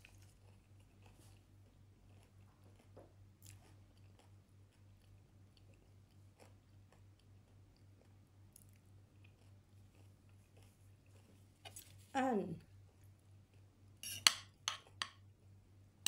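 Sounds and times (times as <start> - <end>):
faint chewing: 0.0 - 15.2
steady low hum: 0.0 - 16.0.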